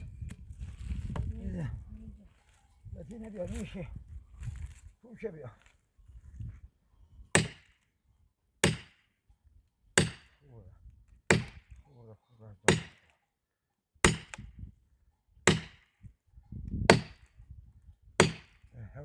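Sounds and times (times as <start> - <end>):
axe chopping firewood: 7.3 - 7.8, 8.6 - 9.1, 10.0 - 10.4, 11.2 - 11.8, 12.7 - 13.1, 14.0 - 14.6, 15.5 - 16.0, 16.7 - 17.3, 18.2 - 18.7.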